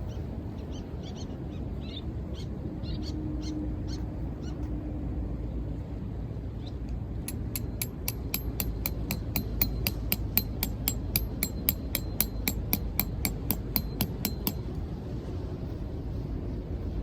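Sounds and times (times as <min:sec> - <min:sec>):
hammer striking metal: 0:07.3 - 0:14.8
surf and wind rumble: 0:14.6 - 0:17.0.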